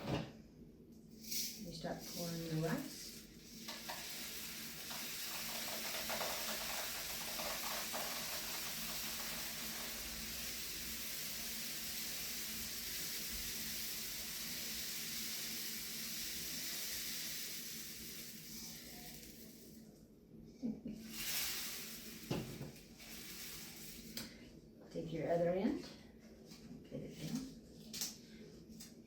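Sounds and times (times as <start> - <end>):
rice grains pouring hiss: 1.2 - 19.9, 21.0 - 24.4.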